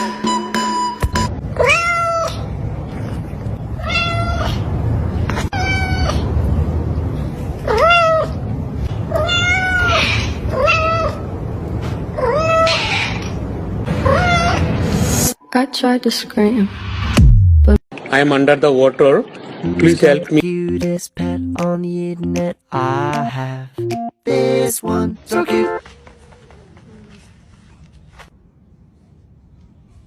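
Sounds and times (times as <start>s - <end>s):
steady low rumble: 2.4s - 9.2s
cat meowing: 3.8s - 4.6s, 5.4s - 6.2s, 7.7s - 8.4s, 9.1s - 11.2s, 12.2s - 13.4s, 14.0s - 14.7s.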